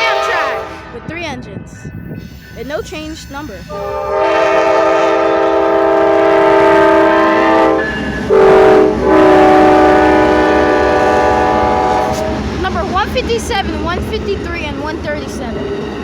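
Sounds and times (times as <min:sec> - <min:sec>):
locomotive air horn blasts: 0:00.0 - 0:01.0, 0:03.7 - 0:12.4
rumble of passing train: 0:00.0 - 0:16.0.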